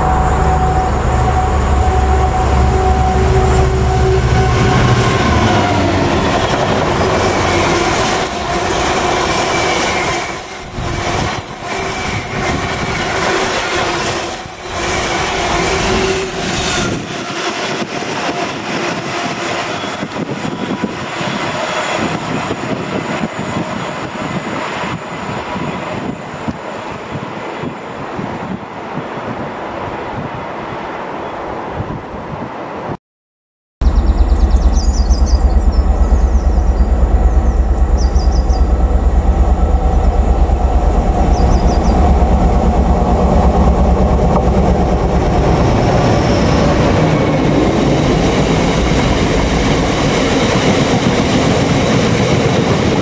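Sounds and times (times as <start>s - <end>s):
diesel locomotive engines passing: 0.0s - 33.0s, 33.8s - 53.0s
thin wheel squeal: 11.1s - 17.2s.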